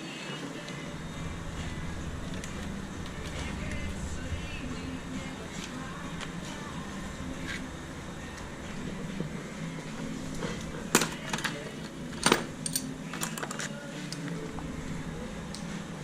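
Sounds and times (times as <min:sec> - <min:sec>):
low background hum: 0:00.3 - 0:16.0
metal clanks: 0:01.2 - 0:13.7.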